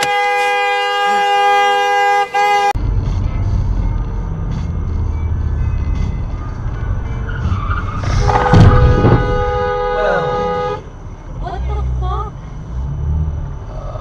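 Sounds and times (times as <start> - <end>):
car horn held: 0.0 - 2.8, 8.2 - 10.9
car tyre and engine rumble: 0.0 - 14.0
loud impact bang: 8.0 - 9.9.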